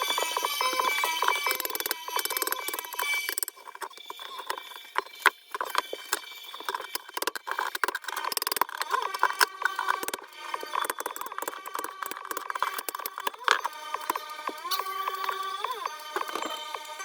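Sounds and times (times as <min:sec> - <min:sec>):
carpet scraping and clicking: 0:00.0 - 0:17.0
ringing tone: 0:00.0 - 0:17.0.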